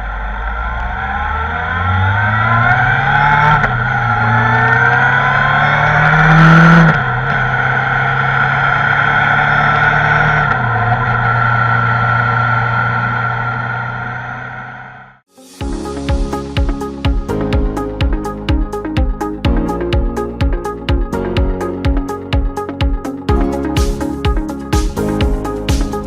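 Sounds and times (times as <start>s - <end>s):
motorcycle engine accelerating: 0.0s - 15.3s.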